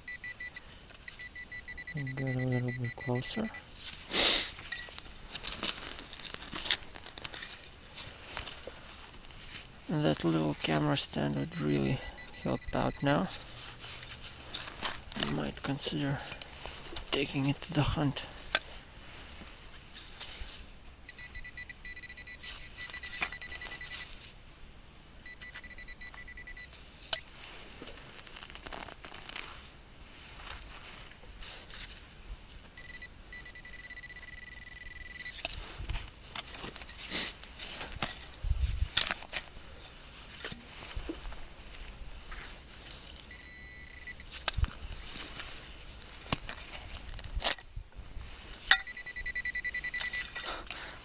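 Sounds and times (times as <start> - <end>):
metal detector high tone: 0.0 - 3.7, 10.7 - 13.4, 21.1 - 24.2, 25.2 - 26.7, 32.8 - 35.5, 43.3 - 44.4, 48.7 - 50.6.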